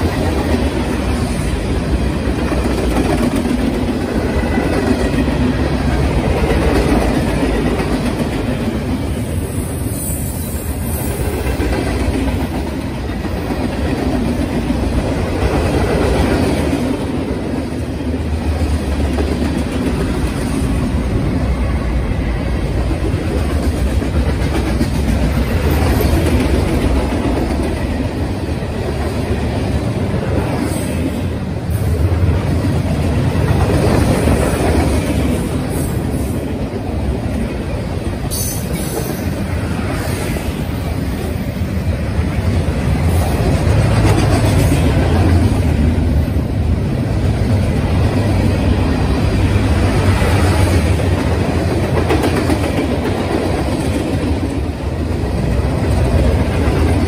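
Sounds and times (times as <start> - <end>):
freight train wheels rolling: 0.0 - 57.0.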